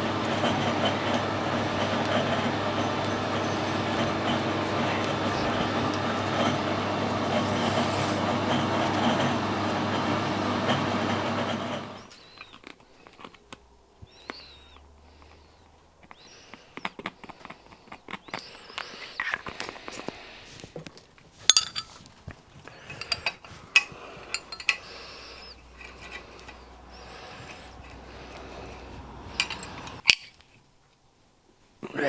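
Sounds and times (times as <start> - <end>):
machine running steadily: 0.0 - 12.1, 25.8 - 30.0
metallic clicks of parts and tools: 21.5 - 22.0, 22.9 - 26.7, 27.4 - 30.4.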